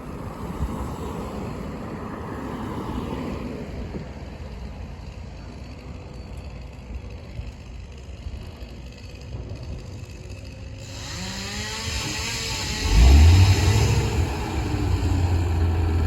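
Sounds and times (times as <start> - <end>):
hiss: 10.8 - 15.5
engine rumbling and revving: 10.8 - 16.0.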